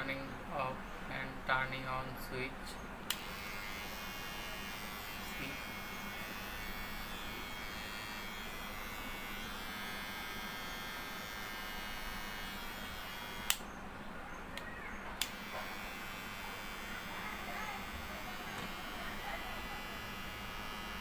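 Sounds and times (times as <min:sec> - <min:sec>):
electric hair clipper buzzing: 0:03.1 - 0:13.7, 0:15.2 - 0:21.0.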